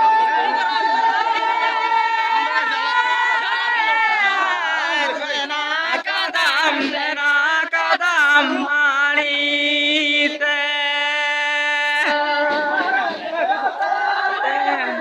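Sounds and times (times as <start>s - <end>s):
voices chanting in unison: 0.0s - 15.0s.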